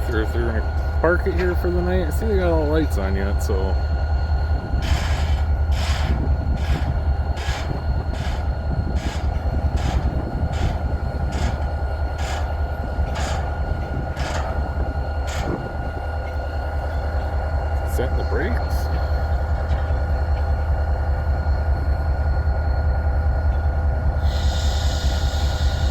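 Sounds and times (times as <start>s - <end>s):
locomotive bell ringing: 0.0s - 4.8s, 5.4s - 20.7s
locomotive engine rumble: 0.0s - 25.9s.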